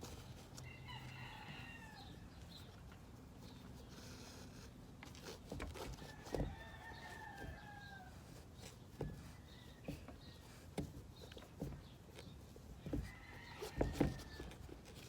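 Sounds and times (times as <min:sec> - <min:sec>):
handling knocks and taps: 0:05.0 - 0:15.0.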